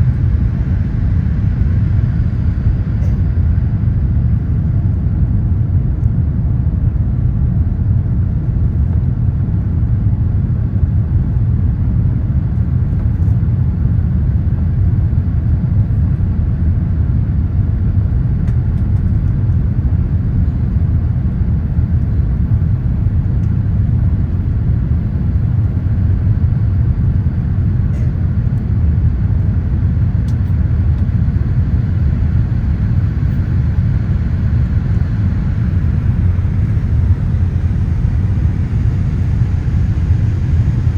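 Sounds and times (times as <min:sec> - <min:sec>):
airliner cabin rumble: 0:00.0 - 0:40.9.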